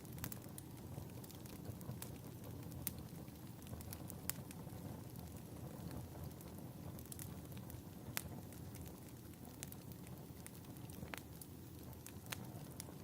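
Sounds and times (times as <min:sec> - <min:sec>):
fire pops and snaps: 0:00.0 - 0:13.0
logs burning rumble: 0:00.0 - 0:13.0.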